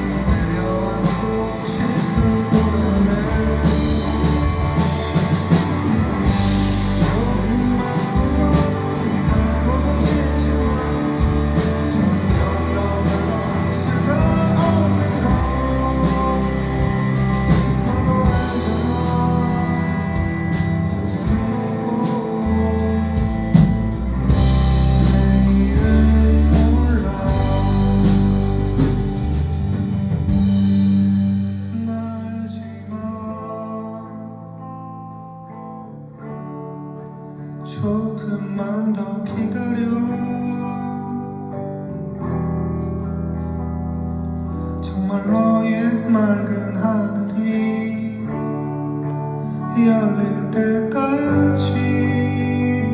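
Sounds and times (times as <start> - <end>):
rock drums: 0.0 - 32.9
bass guitar: 0.0 - 52.9
electric guitar: 0.0 - 52.9.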